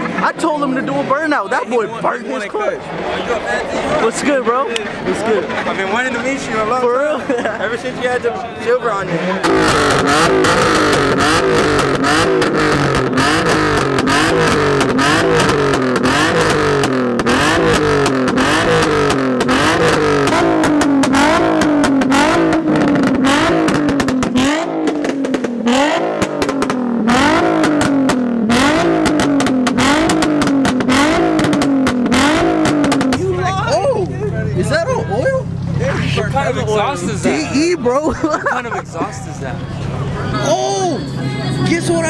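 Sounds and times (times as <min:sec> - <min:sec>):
car engine revving: 0:00.0 - 0:42.0
exhaust crackles and pops: 0:09.4 - 0:33.4.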